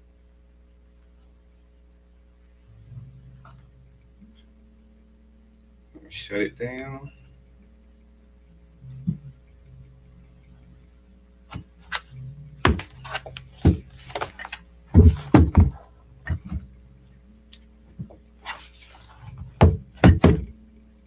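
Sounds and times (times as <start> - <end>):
steady low hum: 0.0 - 21.0
laptop knocking on hard surface: 12.7 - 16.6, 19.6 - 20.5.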